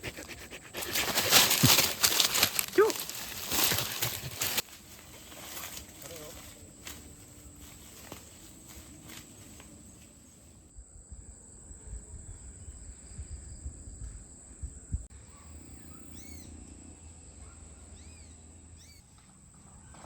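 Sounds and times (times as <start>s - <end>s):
high insect drone: 0.8s - 15.1s
bird calling: 15.3s - 16.6s.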